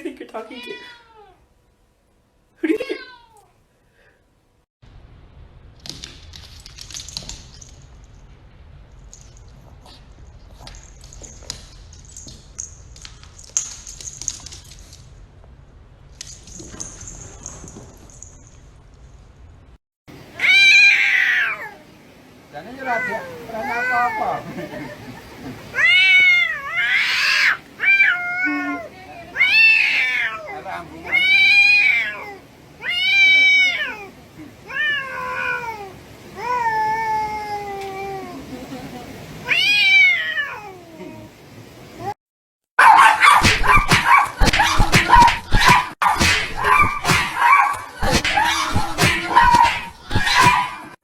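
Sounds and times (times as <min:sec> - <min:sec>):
cat yowling: 0:20.4 - 0:21.9, 0:22.8 - 0:24.6, 0:25.7 - 0:38.5, 0:39.4 - 0:41.3, 0:42.8 - 0:51.0
sharp taps and knocks: 0:43.4 - 0:50.6.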